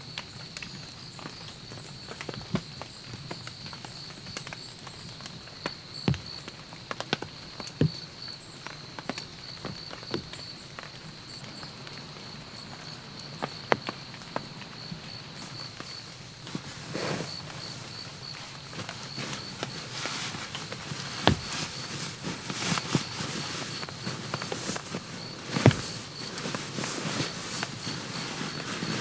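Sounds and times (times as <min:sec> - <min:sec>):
light taps and knocks: 0:15.8 - 0:29.0.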